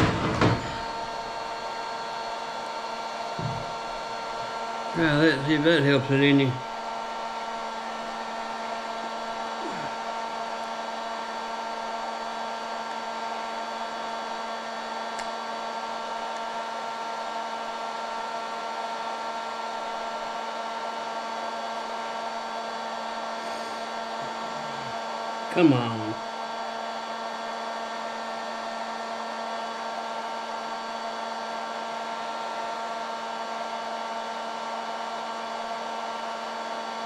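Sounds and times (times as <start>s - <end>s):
motor hum: 0.0s - 16.7s
heat gun fan blowing: 0.0s - 26.1s.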